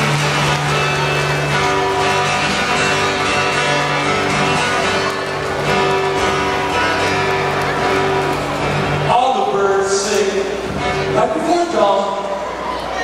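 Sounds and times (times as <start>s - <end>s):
strummed guitar: 0.0s - 13.0s.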